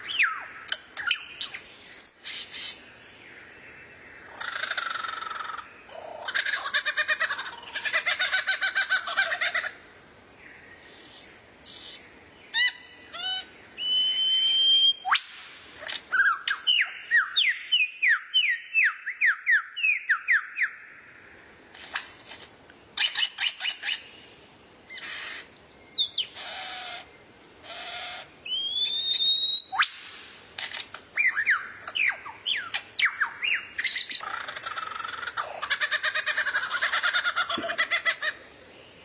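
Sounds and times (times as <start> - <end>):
recorded songbird song: 0.0 - 39.0
rising bird whistle: 13.8 - 15.3, 27.8 - 30.0
harsh buzzy bird calls: 24.9 - 38.5.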